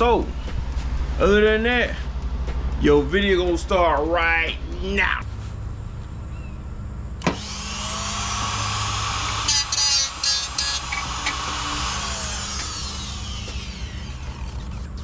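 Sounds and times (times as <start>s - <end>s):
cutting wheel whining: 5.2s - 15.0s
grinding metal: 10.2s - 15.0s.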